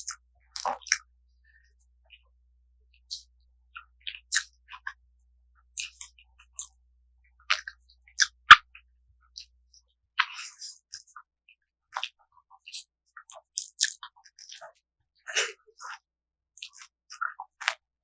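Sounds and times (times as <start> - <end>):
wet chewing and smacking: 12.0 - 14.6, 16.6 - 17.8.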